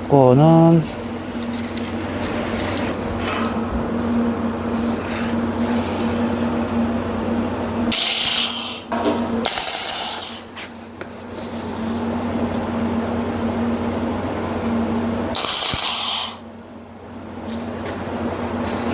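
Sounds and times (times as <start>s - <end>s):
constant hum: 0.0s - 18.9s
crackling of metalworking tool: 1.0s - 3.7s
loud hissing bursts: 7.9s - 10.5s, 15.3s - 16.5s.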